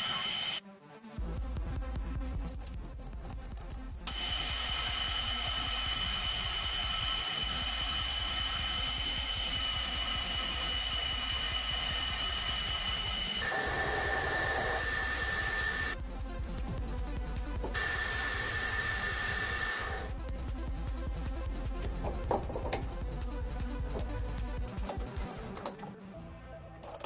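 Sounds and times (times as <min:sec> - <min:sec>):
metal lathe cutting whine: 0:00.0 - 0:00.6, 0:04.1 - 0:16.0, 0:17.8 - 0:20.1.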